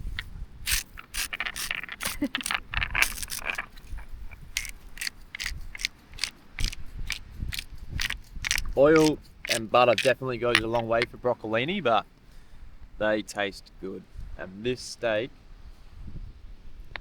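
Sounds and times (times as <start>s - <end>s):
metal clinking and scraping on grill: 0.0s - 6.7s.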